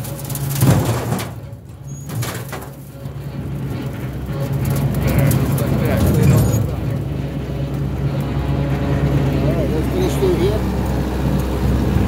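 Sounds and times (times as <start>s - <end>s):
small tractor engine running: 2.8s - 12.0s.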